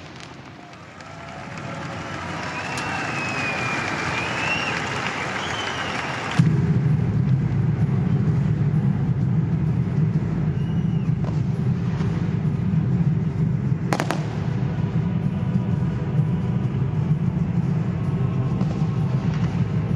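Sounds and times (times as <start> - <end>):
sharp firework cracks: 0.0 - 1.7, 13.9 - 14.7
fireworks rumbling: 0.0 - 19.9.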